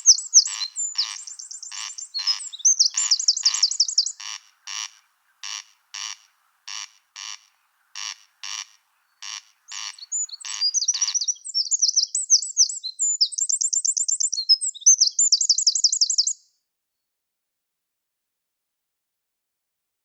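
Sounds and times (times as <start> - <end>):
songbird singing rapid trills: 0.0 - 5.6, 9.0 - 16.5.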